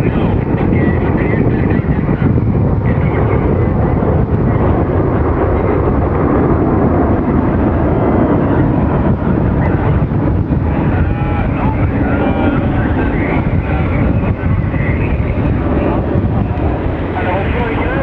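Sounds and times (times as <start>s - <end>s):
jet engines rumbling: 0.0s - 18.0s
wind buffeting microphone: 0.0s - 18.0s.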